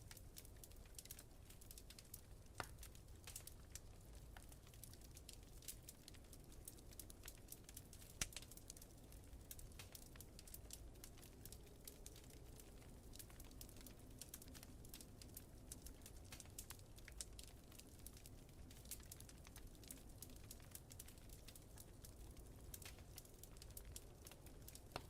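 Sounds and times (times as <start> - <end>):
wood fire crackling and popping: 0.0 - 25.0.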